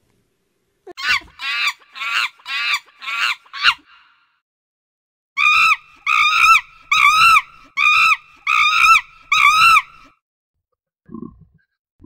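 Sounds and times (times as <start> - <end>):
monkey calling: 0.9 - 4.0, 5.4 - 10.1.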